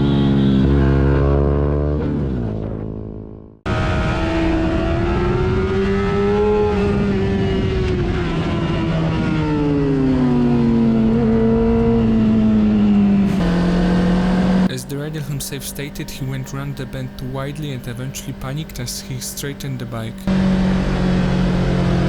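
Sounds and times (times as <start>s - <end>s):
another engine note: 0.0s - 22.0s.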